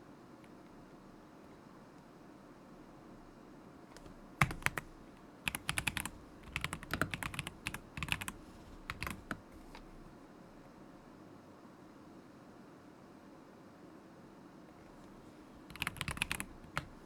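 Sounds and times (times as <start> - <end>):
mechanical keyboard typing: 4.0 - 10.1, 15.6 - 17.0.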